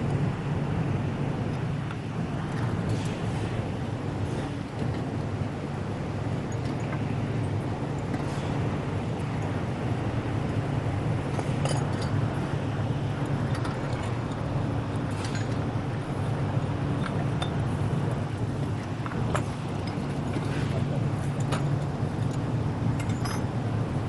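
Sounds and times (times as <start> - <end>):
light metallic clinks: 21.2 - 23.6.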